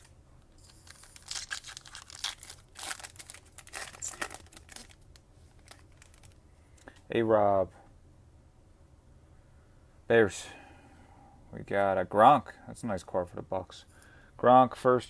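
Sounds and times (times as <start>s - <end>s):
wrapper tearing and crinkling: 0.7s - 6.4s.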